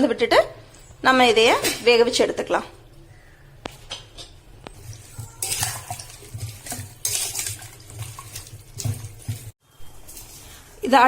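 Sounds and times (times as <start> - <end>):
spoon scraping metal pot: 4.6 - 10.8.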